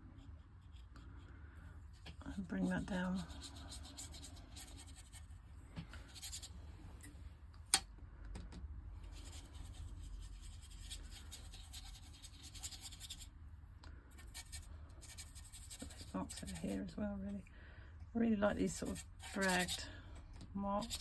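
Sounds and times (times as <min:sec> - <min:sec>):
faint low hum: 0:00.0 - 0:21.0
brush scratching on paper: 0:00.2 - 0:01.2, 0:01.9 - 0:05.3, 0:09.1 - 0:13.3, 0:14.2 - 0:16.9, 0:18.7 - 0:19.9, 0:20.8 - 0:21.0.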